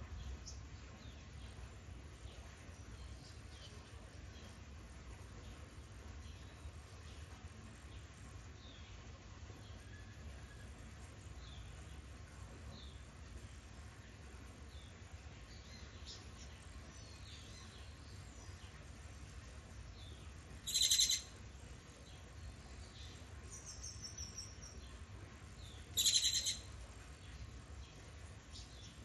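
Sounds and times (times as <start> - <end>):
birds chirping: 14.6 - 29.0
songbird harsh rattling calls: 20.6 - 21.3, 25.9 - 26.7.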